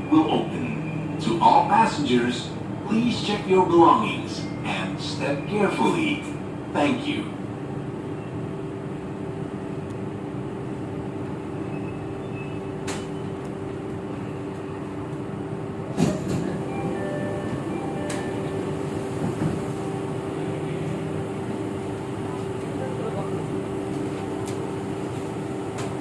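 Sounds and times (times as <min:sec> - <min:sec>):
train rumbling from inside car: 0:08.0 - 0:26.0.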